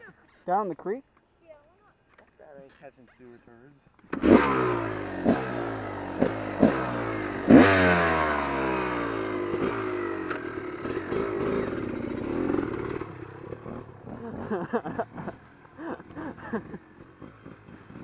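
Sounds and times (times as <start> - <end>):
dirt bike engine revving: 4.1 - 18.0.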